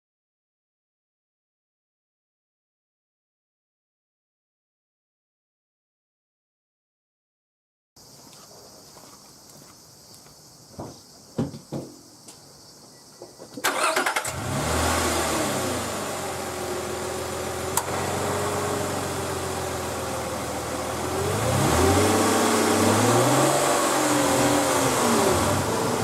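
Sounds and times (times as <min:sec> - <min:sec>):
starter cranking engine: 0:13.6 - 0:14.7
car engine idling and revving: 0:13.6 - 0:26.0.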